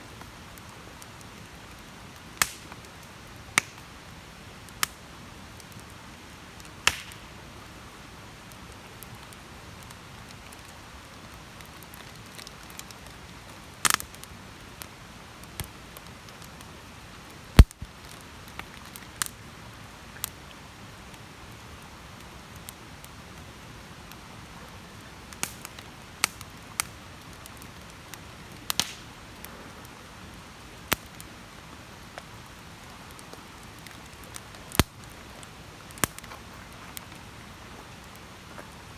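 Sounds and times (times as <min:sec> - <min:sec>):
campfire crackling and popping: 0:00.1 - 0:38.9.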